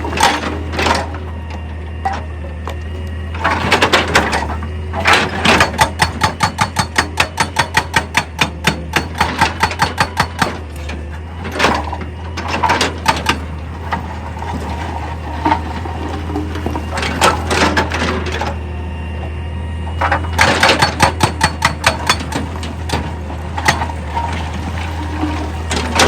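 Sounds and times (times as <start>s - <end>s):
machinery knocking: 5.0s - 10.7s, 20.0s - 24.1s.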